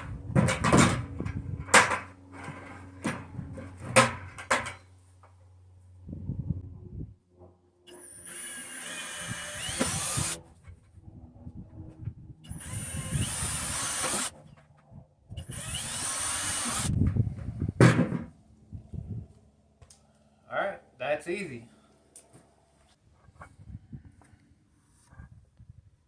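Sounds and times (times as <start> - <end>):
power drill boring through plastic: 7.9 - 10.4, 12.5 - 14.3, 15.4 - 17.0.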